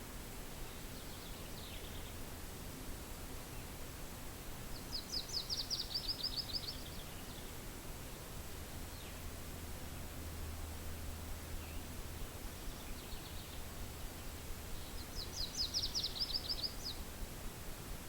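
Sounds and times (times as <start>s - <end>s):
low wind hiss: 0.0s - 18.0s
small bird call: 4.7s - 7.6s, 12.5s - 17.1s.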